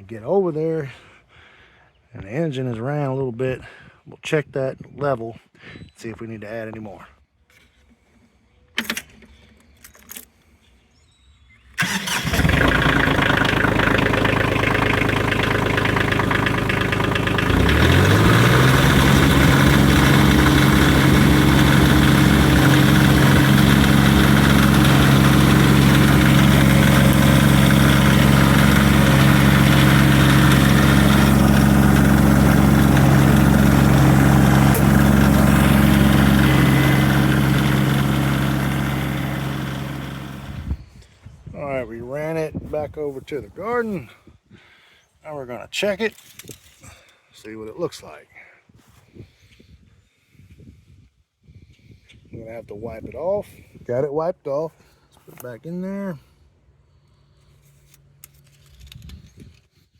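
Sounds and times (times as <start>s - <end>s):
diesel tractor engine running: 11.8s - 40.8s.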